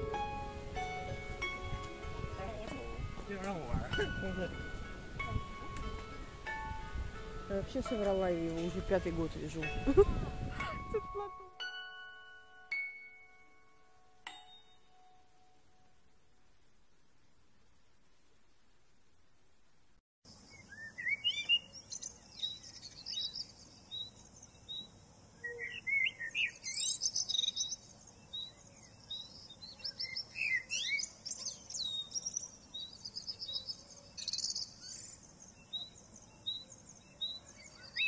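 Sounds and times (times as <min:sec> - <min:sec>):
songbirds singing and chirping: 0:20.3 - 0:38.0.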